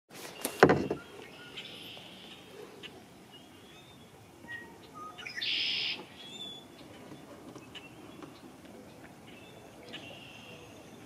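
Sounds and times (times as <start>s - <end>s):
songbirds chirping: 0.2s - 11.0s
loud buzzy bird trill: 3.4s - 6.7s.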